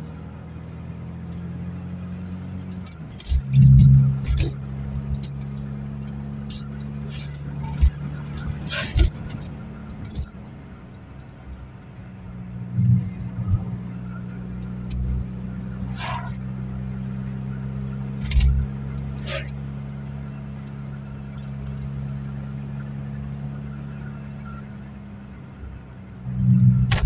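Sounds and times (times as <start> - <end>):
car engine running: 0.0 - 27.0
tyre and road noise: 0.0 - 27.0
car knocks and rattles: 2.7 - 11.6, 18.2 - 19.6, 26.8 - 27.0.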